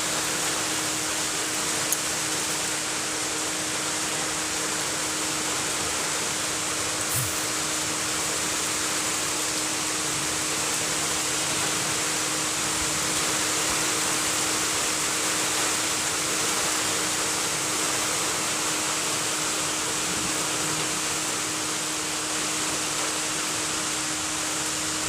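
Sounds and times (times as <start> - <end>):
rain falling: 0.0 - 25.0
low hum: 7.1 - 8.3.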